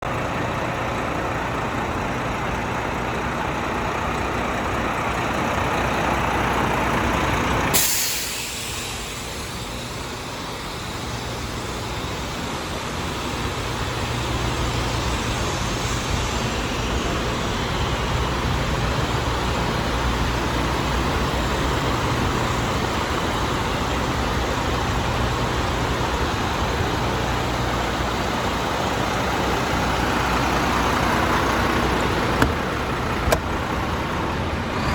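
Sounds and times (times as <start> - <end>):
diesel truck engine running: 0.0 - 34.9.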